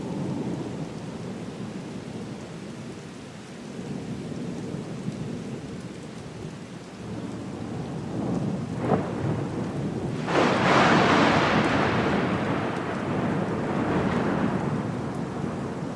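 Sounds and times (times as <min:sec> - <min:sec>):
steady rain: 0:00.0 - 0:15.9
rolling thunder rumble: 0:07.0 - 0:15.9
loud thunderclap: 0:08.2 - 0:15.9
sharp thunder crack: 0:08.8 - 0:15.9.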